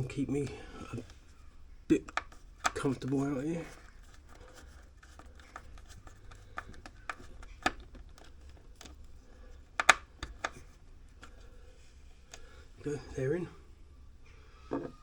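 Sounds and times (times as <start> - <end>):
hands clicking on wiring connectors: 1.9 - 11.4.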